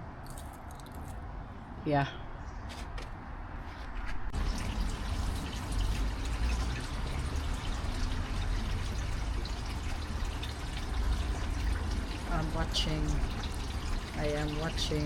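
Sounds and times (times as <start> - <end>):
water pouring into water: 4.4 - 15.0.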